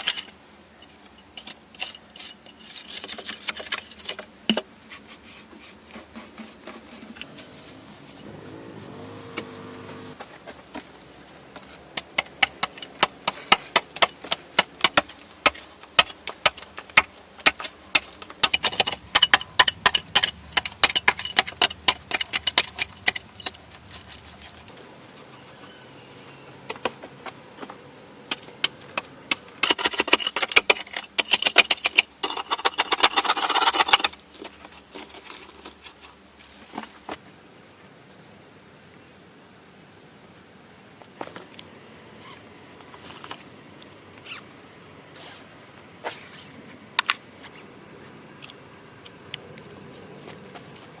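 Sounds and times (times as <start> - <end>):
dense scraping: 18.4 - 24.8
faint high-pitched tone: 41.2 - 47.4.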